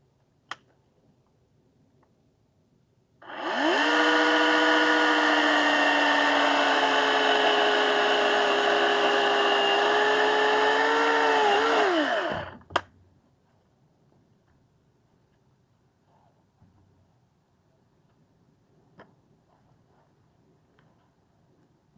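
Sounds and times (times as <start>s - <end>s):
electric chainsaw whining: 3.2s - 12.6s.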